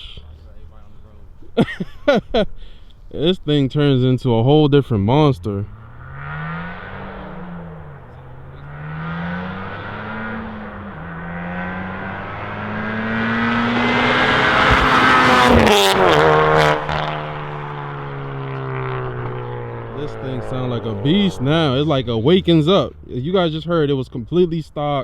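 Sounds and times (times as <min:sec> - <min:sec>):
car engine accelerating: 0:03.2 - 0:25.0
exhaust pops: 0:05.6 - 0:24.7.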